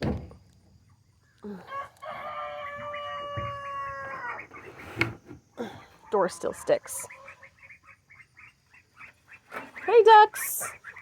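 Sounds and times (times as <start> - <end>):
rooster crowing: 1.7 - 4.5.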